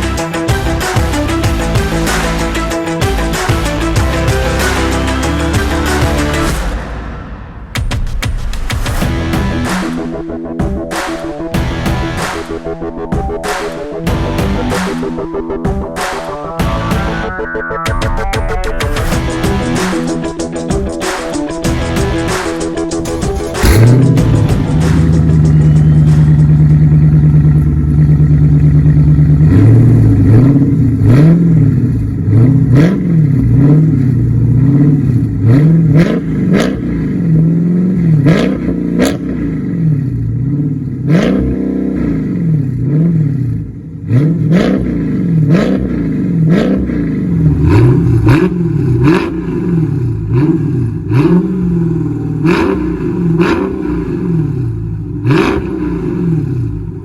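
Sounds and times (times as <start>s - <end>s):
car engine revving: 19.1s - 57.0s
exhaust pops and cracks: 23.0s - 25.6s.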